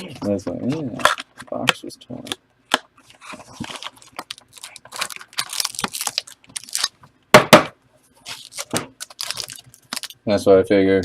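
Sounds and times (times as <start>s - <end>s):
card packs being torn open: 3.2s - 7.0s, 8.2s - 10.2s.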